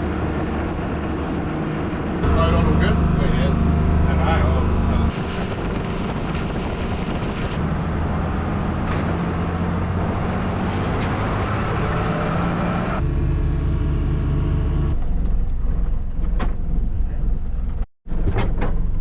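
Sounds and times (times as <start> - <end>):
motorboat engine running: 0.0 - 12.2, 13.0 - 17.8
wind noise: 0.0 - 13.0.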